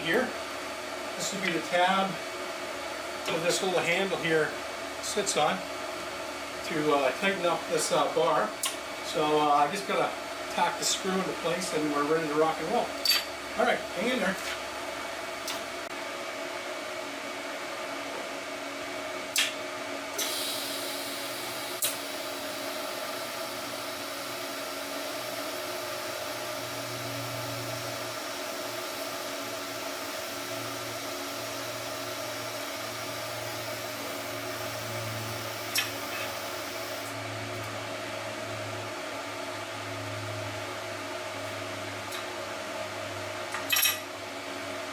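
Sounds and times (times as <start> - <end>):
welder hum and fan hiss: 0.0 - 44.9
high welding hiss: 20.2 - 27.8, 28.5 - 37.1.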